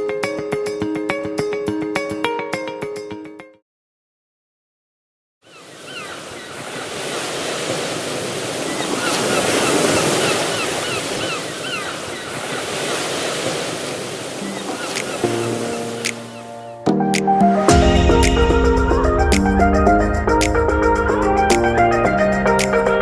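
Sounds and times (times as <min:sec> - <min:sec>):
music: 0:00.0 - 0:03.6, 0:14.7 - 0:23.0
wind: 0:05.4 - 0:16.9
sea waves washing: 0:05.5 - 0:17.3.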